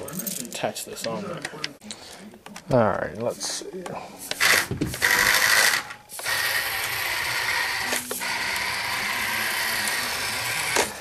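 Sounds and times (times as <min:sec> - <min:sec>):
robot electric motor and gears: 0:04.4 - 0:11.0.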